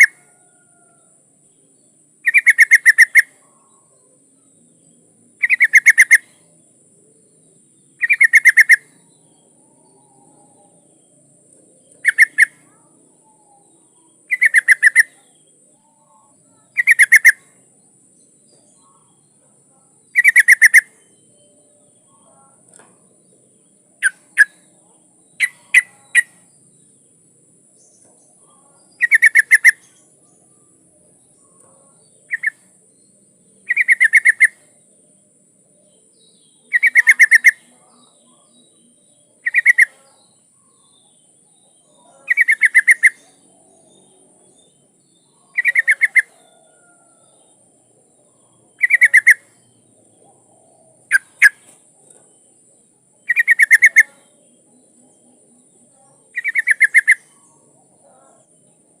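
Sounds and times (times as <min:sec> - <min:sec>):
bulbul calling in bubbly phrases: 0:02.2 - 0:03.3, 0:05.4 - 0:06.2, 0:08.0 - 0:08.8, 0:12.0 - 0:12.6, 0:14.3 - 0:15.2, 0:16.7 - 0:17.4, 0:20.1 - 0:20.9, 0:29.0 - 0:29.8, 0:36.7 - 0:38.6, 0:39.4 - 0:40.0, 0:42.3 - 0:43.3, 0:45.5 - 0:46.3, 0:48.7 - 0:49.5, 0:53.3 - 0:54.3, 0:56.3 - 0:57.3.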